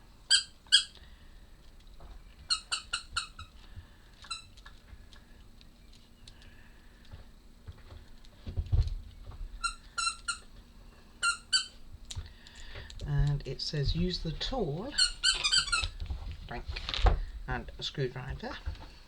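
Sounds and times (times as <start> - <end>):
faint handling sounds: 3.3 - 19.0
short high-pitched squeaks: 15.0 - 16.0.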